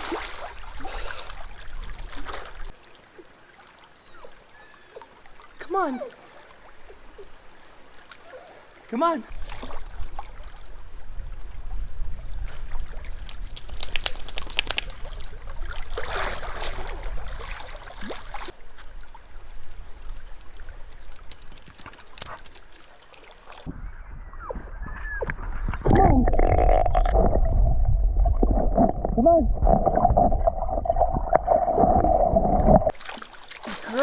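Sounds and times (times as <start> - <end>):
water splashing and sloshing: 0.0 - 23.7, 27.0 - 34.0
wind rumble on microphone: 9.3 - 17.9, 23.6 - 32.9.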